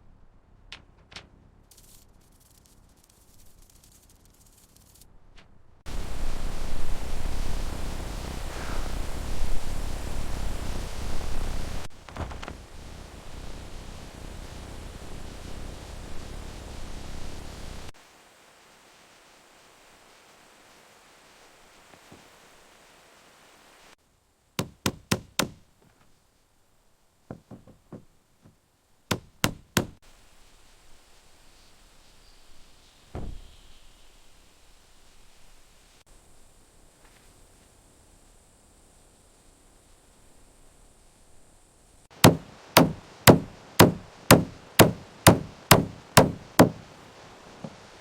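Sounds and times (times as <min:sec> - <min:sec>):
hammer striking timber: 0:24.6 - 0:25.6, 0:27.3 - 0:28.1, 0:29.1 - 0:30.0, 0:42.2 - 0:46.9.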